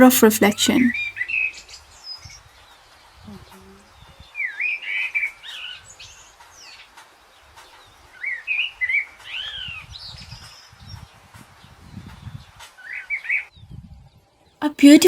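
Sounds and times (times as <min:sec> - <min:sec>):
birds chirping: 0:00.0 - 0:01.2.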